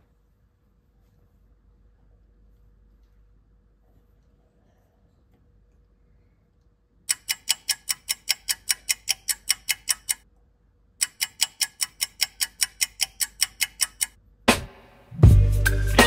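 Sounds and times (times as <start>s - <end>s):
clock ticking: 7.1s - 10.2s, 11.0s - 14.2s.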